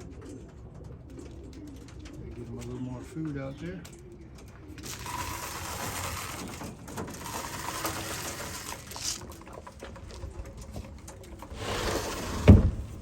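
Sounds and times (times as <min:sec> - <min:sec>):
pigeons cooing: 0:00.0 - 0:12.8
grain feed rattling: 0:04.8 - 0:12.3.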